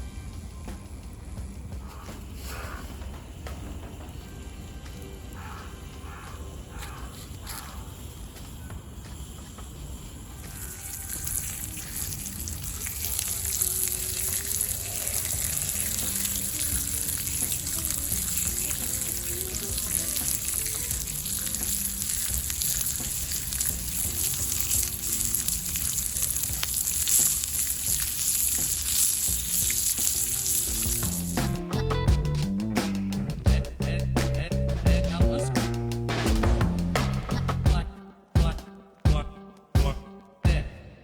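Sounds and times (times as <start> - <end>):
food sizzling in a pan: 5.4 - 31.9.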